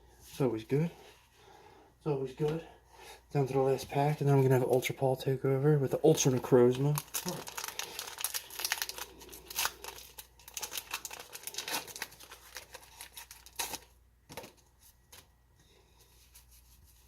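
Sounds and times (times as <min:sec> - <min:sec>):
foil wrapper crinkling and tearing: 0:06.6 - 0:14.0.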